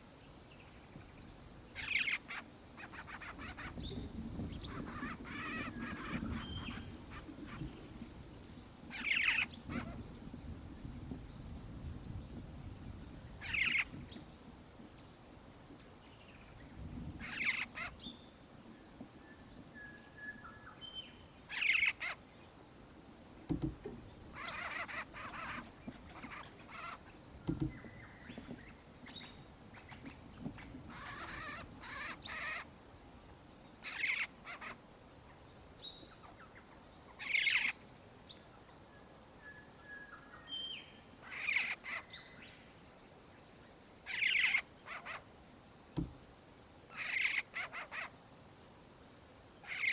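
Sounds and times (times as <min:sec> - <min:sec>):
birds raspy calls: 0:01.7 - 0:11.3, 0:12.1 - 0:14.2, 0:16.8 - 0:18.2, 0:21.5 - 0:22.3, 0:23.6 - 0:32.7, 0:33.8 - 0:35.4, 0:41.2 - 0:42.4, 0:44.0 - 0:45.3, 0:46.9 - 0:48.1, 0:49.6 - 0:49.9.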